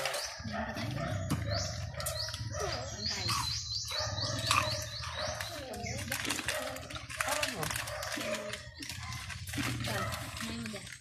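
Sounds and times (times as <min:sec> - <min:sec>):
small bird chirping: 0:00.0 - 0:07.0.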